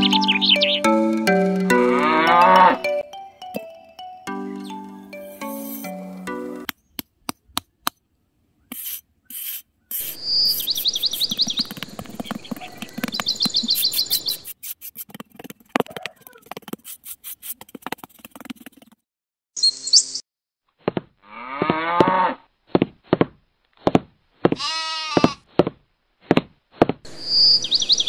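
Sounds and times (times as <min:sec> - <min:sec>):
birds chirping: 0:00.0 - 0:03.0, 0:04.3 - 0:07.0, 0:08.6 - 0:14.5, 0:27.1 - 0:28.0
cow mooing: 0:01.8 - 0:02.9
animal call: 0:12.2 - 0:14.4, 0:15.8 - 0:16.6
trowel scraping on cement: 0:13.6 - 0:19.0.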